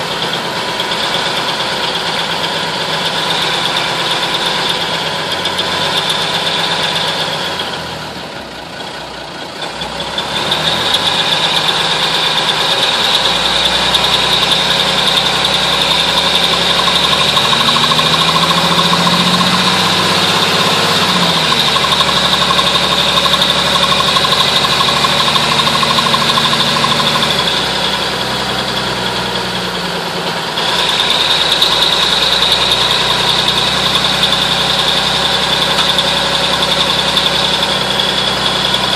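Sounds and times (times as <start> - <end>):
diesel truck engine running: 0.0 - 38.9
steady high whine: 30.4 - 38.9.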